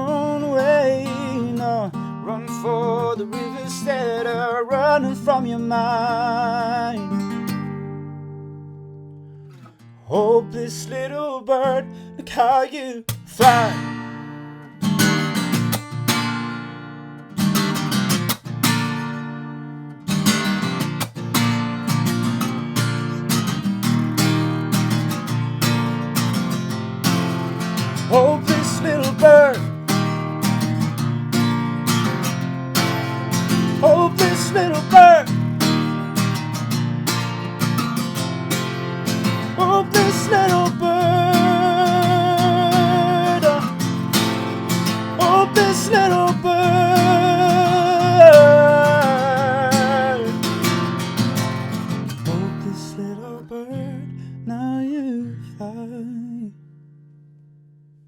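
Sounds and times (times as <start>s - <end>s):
wordless vocal melody: 0.0s - 7.2s, 10.1s - 14.1s, 27.8s - 30.1s, 33.3s - 35.8s, 39.0s - 51.1s
acoustic guitar: 0.0s - 58.0s.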